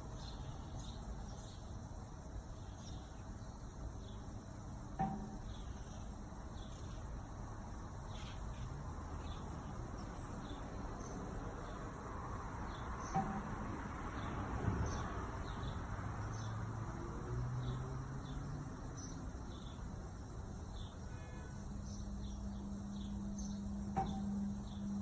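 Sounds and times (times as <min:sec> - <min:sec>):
water heater humming: 0:21.5 - 0:25.0.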